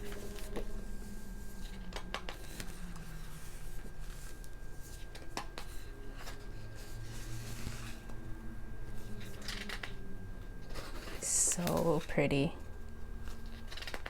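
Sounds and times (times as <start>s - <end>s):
magazine pages rustling: 0.0s - 8.2s, 13.2s - 14.0s
low room hum: 0.0s - 14.0s
sharp paper clicks: 13.3s - 14.0s.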